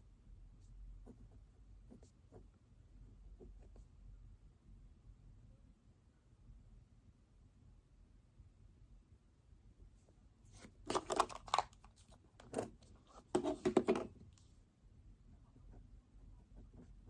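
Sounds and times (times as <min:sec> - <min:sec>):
paper rustling: 0:10.5 - 0:14.1.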